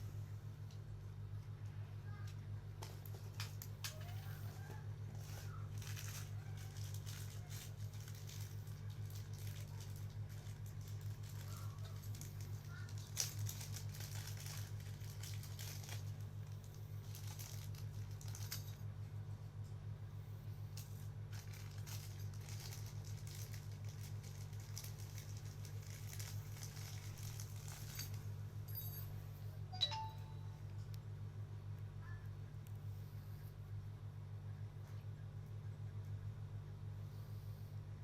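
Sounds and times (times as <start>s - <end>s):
steady low hum: 0.0s - 38.0s
packaging crinkling and rustling: 2.8s - 18.8s, 20.8s - 28.3s.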